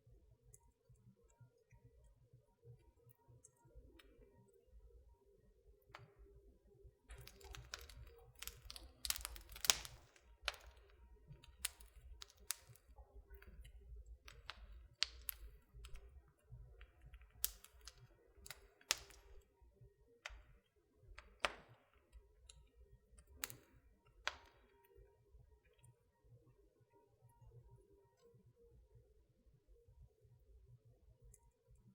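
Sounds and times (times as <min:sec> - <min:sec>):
wood fire crackling: 0:07.1 - 0:25.0.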